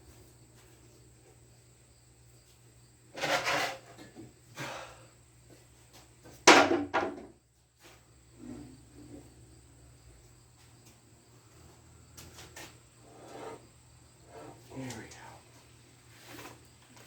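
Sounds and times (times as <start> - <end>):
handling scrapes: 3.2 - 4.0, 12.2 - 14.8, 16.1 - 16.6.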